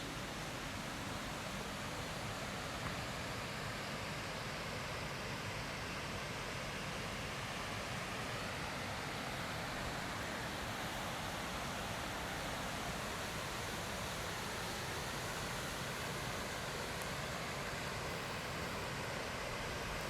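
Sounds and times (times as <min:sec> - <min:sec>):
forest stream flowing water: 0:00.0 - 0:20.0.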